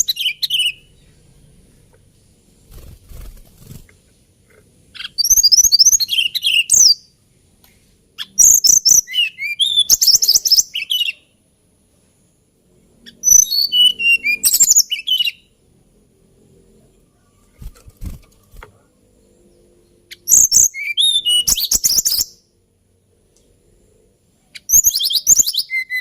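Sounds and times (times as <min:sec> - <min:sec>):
flycatcher singing: 0:00.0 - 0:01.4, 0:04.9 - 0:07.1, 0:08.2 - 0:11.2, 0:13.0 - 0:15.6, 0:17.4 - 0:22.5, 0:24.6 - 0:26.0.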